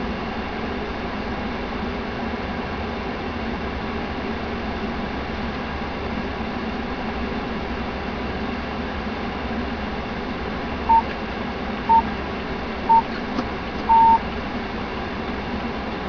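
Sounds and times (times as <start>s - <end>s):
electronic beeps: 10.9s - 11.1s, 11.9s - 12.1s, 12.9s - 13.2s, 13.9s - 14.2s
car cabin rumble: 12.8s - 14.2s.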